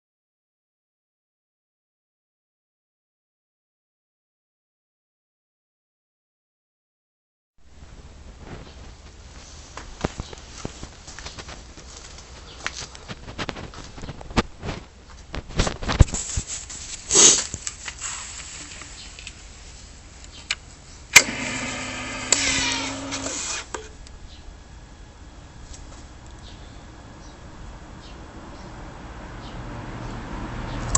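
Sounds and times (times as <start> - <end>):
electric starter cranking engine: 21.2 - 23.9.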